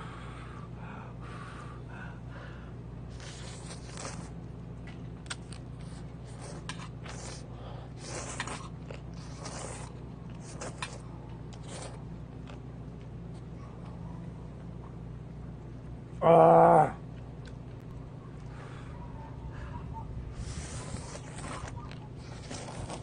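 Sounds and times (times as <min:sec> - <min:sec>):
steady low hum: 0:00.0 - 0:23.0
person slurping soup: 0:08.0 - 0:11.0, 0:20.4 - 0:23.0
chewing with small clicks: 0:08.0 - 0:14.9, 0:17.1 - 0:19.3.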